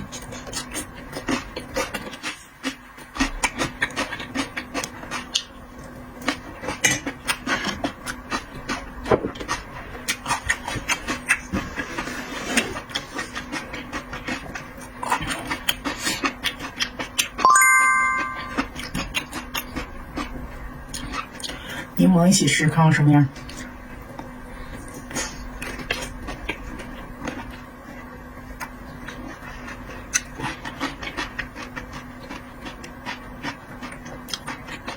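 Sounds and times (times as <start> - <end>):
wet chewing and smacking: 0.0 - 17.4, 18.2 - 21.9, 23.4 - 34.9
bright ringing tone: 17.4 - 18.6.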